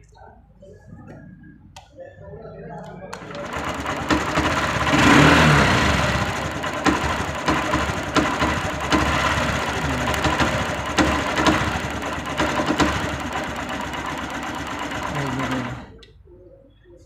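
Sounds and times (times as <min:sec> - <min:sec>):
motorcycle engine idling unevenly: 0:03.1 - 0:16.0
sharp engine knocks: 0:03.3 - 0:15.6.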